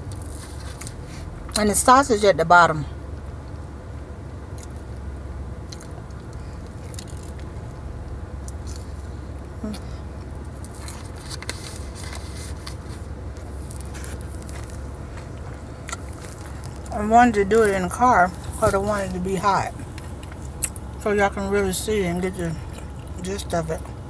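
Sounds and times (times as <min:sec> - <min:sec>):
car air conditioning hum: 0:00.0 - 0:24.0
person chewing crunchy food: 0:05.6 - 0:09.4, 0:10.0 - 0:17.0, 0:19.7 - 0:21.0, 0:22.6 - 0:23.2.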